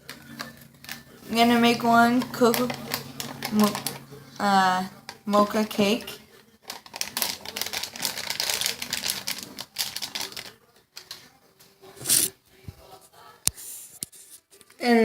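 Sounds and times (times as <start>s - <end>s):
plastic packet crinkling: 0.0s - 11.3s.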